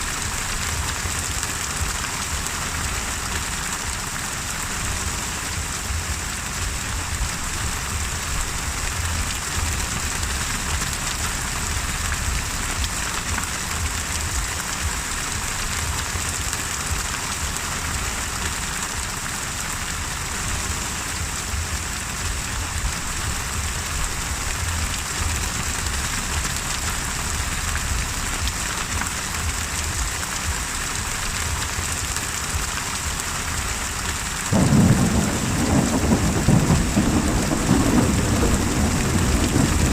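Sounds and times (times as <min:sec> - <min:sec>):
heavy rain hissing: 0:00.0 - 0:39.9
loud low thunder rumble: 0:34.5 - 0:39.9.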